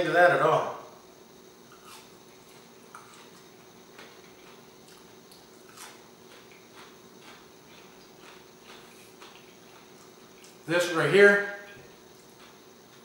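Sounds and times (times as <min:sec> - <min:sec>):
faint crunchy chewing: 0:01.7 - 0:10.7, 0:11.8 - 0:13.0.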